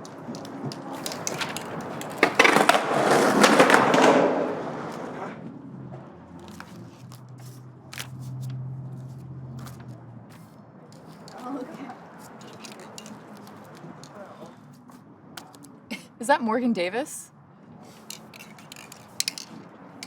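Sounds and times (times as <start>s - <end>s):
skateboard rolling and clacking: 0.0s - 6.7s, 12.3s - 14.2s, 18.1s - 19.7s.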